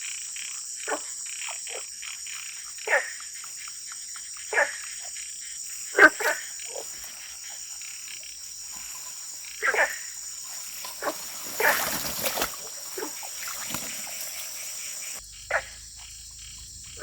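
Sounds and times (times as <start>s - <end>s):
frogs croaking: 0.0s - 17.0s.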